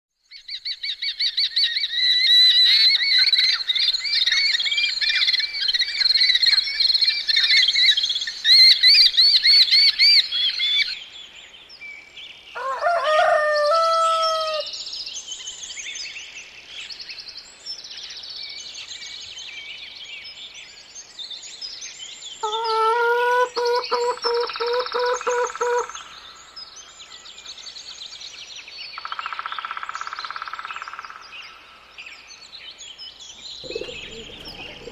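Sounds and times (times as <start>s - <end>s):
birds chirping: 0.5s - 34.9s
lower repeated bird call: 22.4s - 26.4s, 33.5s - 34.9s.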